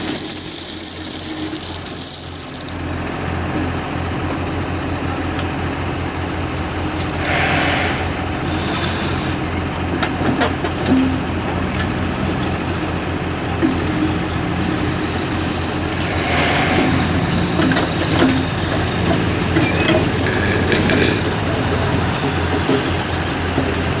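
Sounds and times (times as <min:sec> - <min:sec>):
diesel engine running: 0:00.0 - 0:24.0
metal clanks and knocks: 0:09.9 - 0:12.0, 0:13.6 - 0:23.8.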